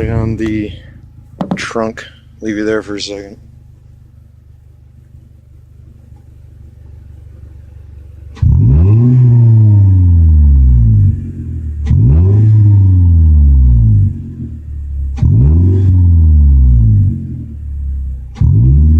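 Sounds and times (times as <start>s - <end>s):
car engine idling and revving: 0.0s - 18.9s.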